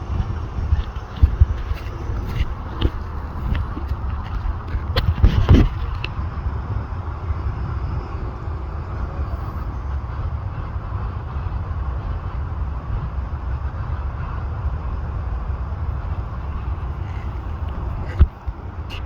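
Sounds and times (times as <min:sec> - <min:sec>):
moving vehicle rumble: 0:00.0 - 0:19.0.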